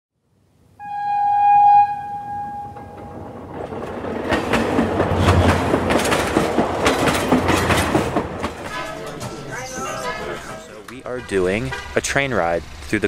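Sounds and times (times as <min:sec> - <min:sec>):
train horn: 0:00.8 - 0:03.3
train wheels clattering over rail joints: 0:02.8 - 0:09.4.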